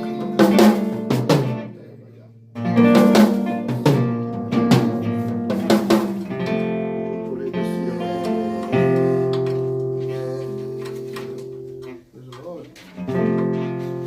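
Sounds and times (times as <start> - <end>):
drum kit hits: 0.0 - 1.7, 2.6 - 6.9
strummed guitar chords: 0.0 - 14.0.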